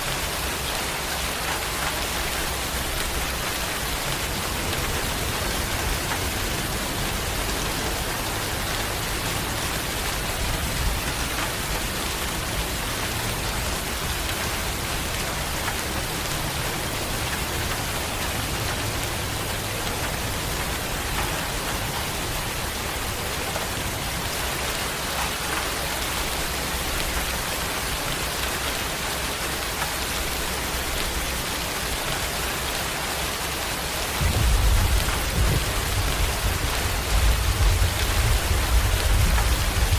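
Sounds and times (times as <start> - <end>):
steady rain falling: 0.0 - 39.9
deep rumble of thunder: 34.2 - 39.9.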